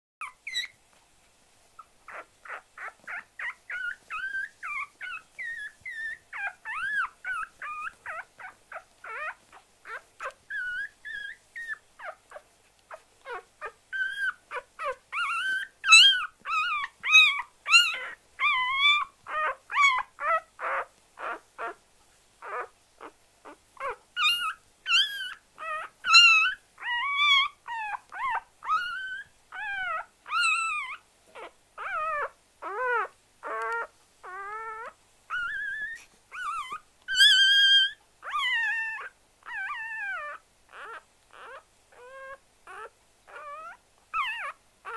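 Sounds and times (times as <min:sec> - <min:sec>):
animal whining calls: 0:23.8 - 0:44.9.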